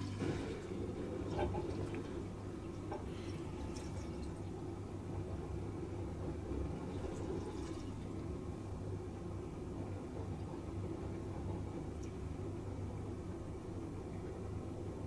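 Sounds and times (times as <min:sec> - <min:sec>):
water draining: 0:00.0 - 0:05.0
dishwasher drain pump humming: 0:00.0 - 0:15.0.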